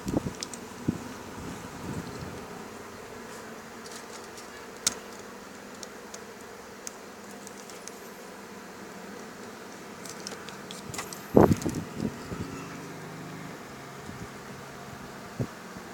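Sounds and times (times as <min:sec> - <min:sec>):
low buzzing hum: 0:00.0 - 0:15.9.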